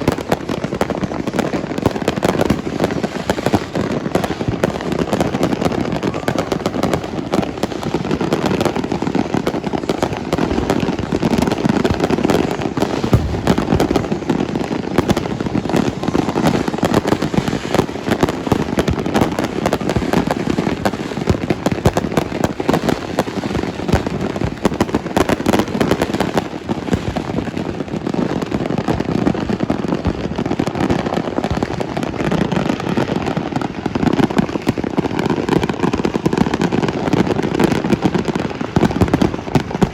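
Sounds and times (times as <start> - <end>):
fireworks and firecrackers crackling: 0.0 - 39.9.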